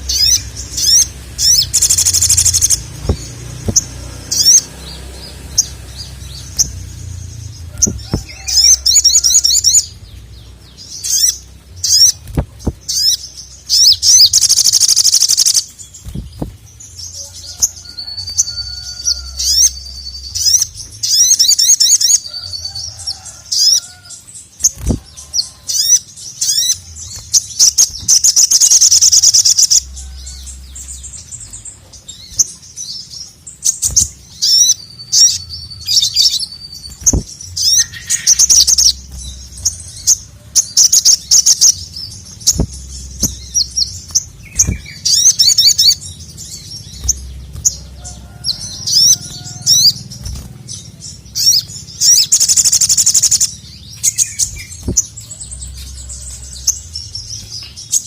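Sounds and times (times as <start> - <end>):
bird singing rapid trills: 0.0 - 58.0.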